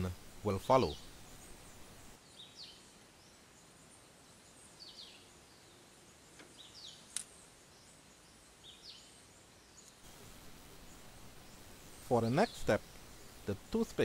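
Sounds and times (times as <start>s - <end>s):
bird chirping: 0.0s - 14.0s
sharp click: 7.1s - 7.3s.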